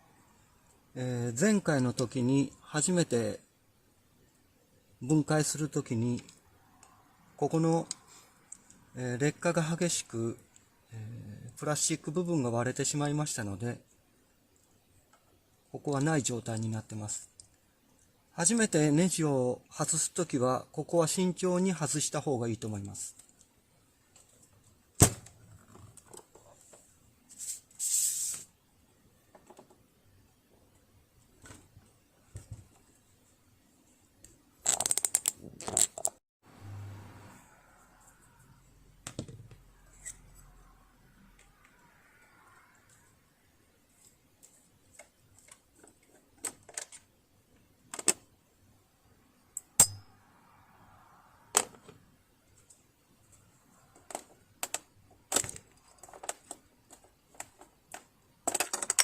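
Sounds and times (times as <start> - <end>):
screwdriver and parts clicking: 54.1 - 59.0.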